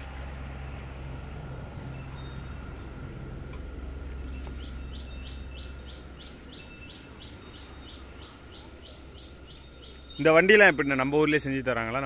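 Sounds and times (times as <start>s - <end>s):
birds chirping: 3.8s - 12.0s.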